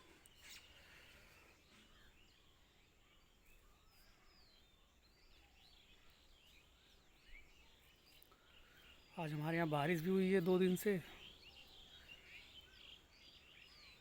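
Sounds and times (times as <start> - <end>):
faint small bird chirps: 0.0 - 14.0.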